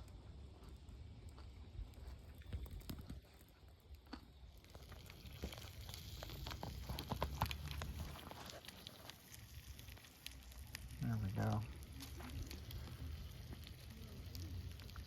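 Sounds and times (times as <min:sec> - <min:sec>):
campfire crackling: 0:00.0 - 0:15.0
food sizzling: 0:04.4 - 0:15.0.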